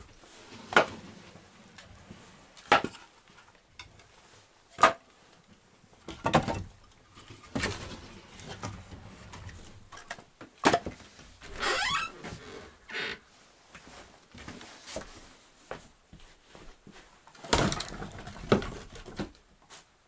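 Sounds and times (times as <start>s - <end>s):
wooden knocks and clatters: 6.1s - 11.1s, 17.4s - 19.4s.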